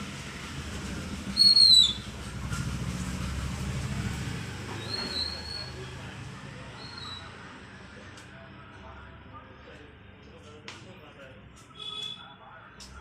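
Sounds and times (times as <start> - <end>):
parrot whistles: 1.4 - 2.1.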